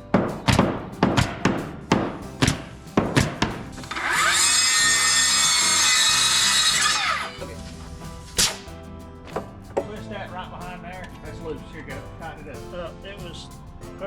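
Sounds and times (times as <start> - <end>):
sharp knock: 0.4 - 3.7
power tool motor spinning: 3.8 - 7.4.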